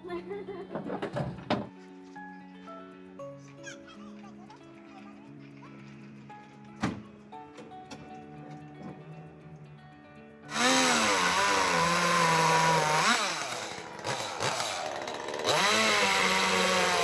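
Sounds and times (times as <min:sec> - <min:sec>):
small engine revving: 0:10.5 - 0:17.0.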